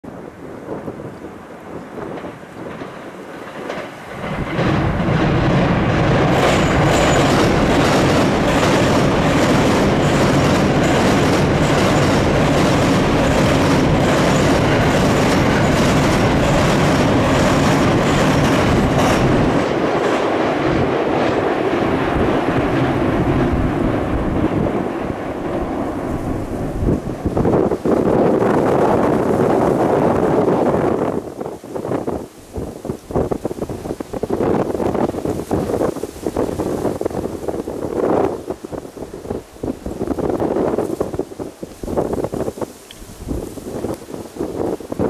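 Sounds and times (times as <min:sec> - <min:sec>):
electric train rumbling on bridge: 0:00.0 - 0:45.0
wheel clatter over rail joints: 0:01.5 - 0:32.2.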